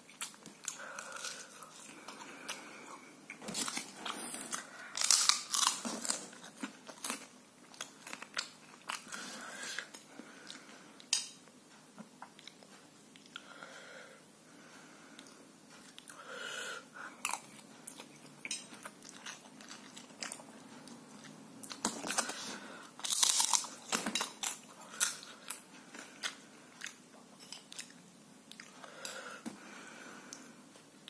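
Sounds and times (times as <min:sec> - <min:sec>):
person chewing crisp food: 0:00.0 - 0:11.2, 0:17.0 - 0:29.4.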